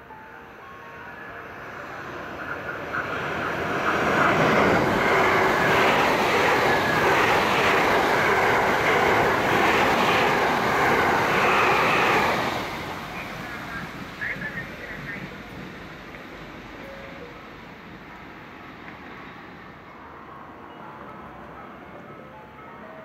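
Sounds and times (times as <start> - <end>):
train wheels rushing on rails: 1.6 - 19.9.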